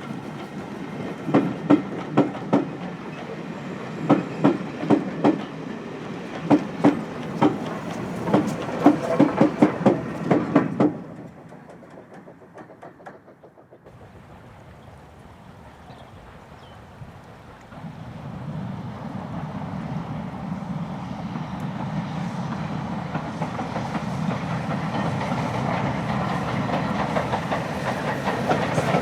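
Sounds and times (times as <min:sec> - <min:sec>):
train wheels clattering over rail joints: 0:00.0 - 0:14.4, 0:21.7 - 0:29.0.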